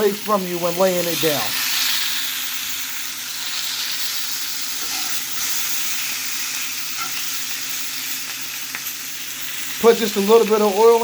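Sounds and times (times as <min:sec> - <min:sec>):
meat sizzling in a hot pan: 0:00.0 - 0:11.0.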